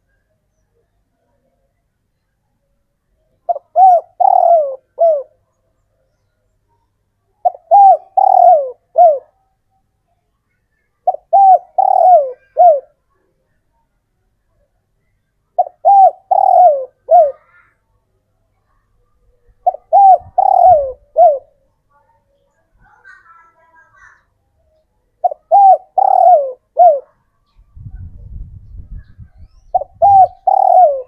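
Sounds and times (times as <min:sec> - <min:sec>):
dove cooing: 0:03.5 - 0:05.4, 0:07.4 - 0:09.4, 0:11.1 - 0:13.0, 0:15.6 - 0:17.6, 0:19.6 - 0:21.6, 0:25.2 - 0:27.2, 0:27.8 - 0:31.0.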